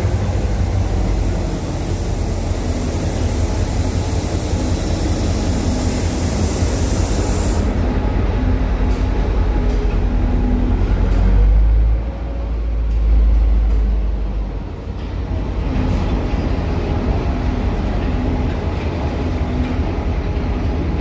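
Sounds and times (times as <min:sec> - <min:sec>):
high hiss: 0:00.0 - 0:07.8
diesel locomotive rumbling: 0:00.0 - 0:21.0.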